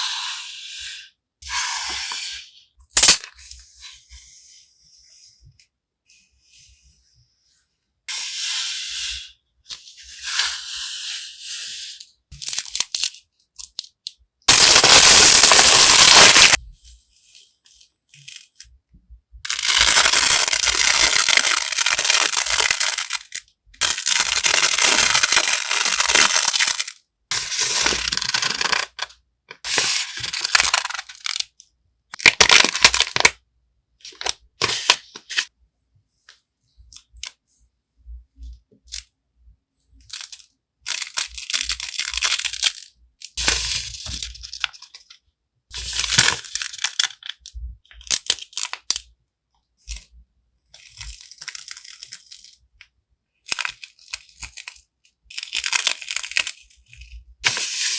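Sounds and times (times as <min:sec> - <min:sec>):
paper and packaging crinkling: 0:14.5 - 0:16.6, 0:19.5 - 0:29.1, 0:29.7 - 0:31.5, 0:32.2 - 0:33.3, 0:40.2 - 0:45.1, 0:45.8 - 0:47.4, 0:50.8 - 0:52.6, 0:53.5 - 0:57.9.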